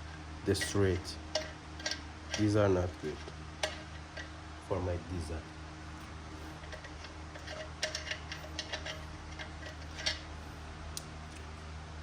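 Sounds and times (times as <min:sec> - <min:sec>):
steady low hum: 0:00.0 - 0:12.0
hose fittings clicking and tapping: 0:00.6 - 0:02.6, 0:03.2 - 0:04.4, 0:06.0 - 0:10.3.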